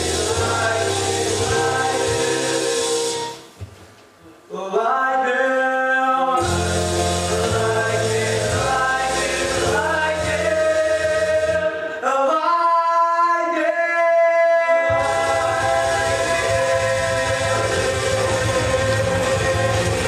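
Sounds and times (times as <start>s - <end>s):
voices singing rock and roll: 0.0s - 3.0s, 4.6s - 20.0s
band playing: 0.0s - 3.6s, 6.4s - 11.8s, 14.9s - 20.0s.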